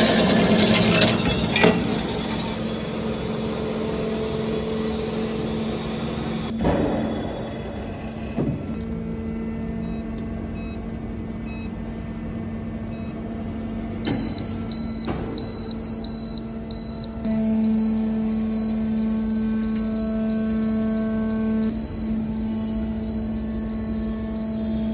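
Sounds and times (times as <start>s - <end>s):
band saw machine humming: 0.0s - 24.9s
short high-pitched electronic beeps: 14.1s - 24.9s.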